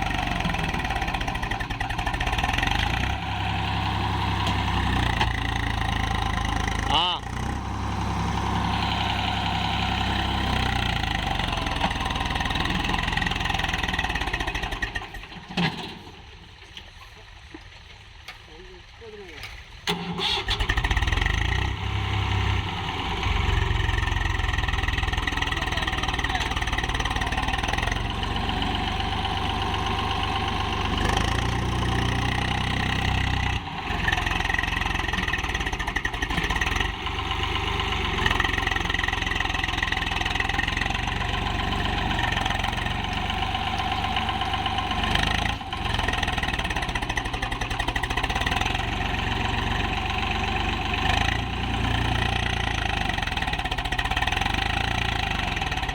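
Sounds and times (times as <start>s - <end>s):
tractor diesel engine running: 0.0s - 16.7s, 19.8s - 55.9s.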